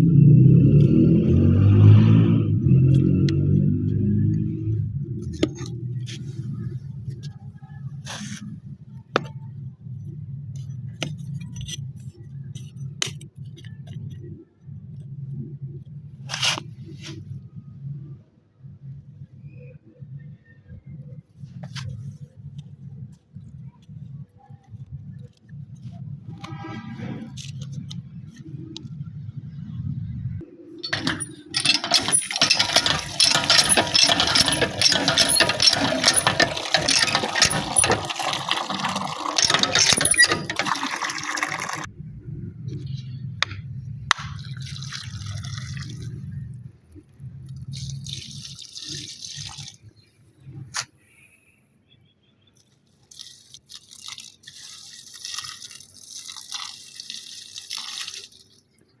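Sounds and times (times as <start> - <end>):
water running and splashing: 53.0 - 58.8.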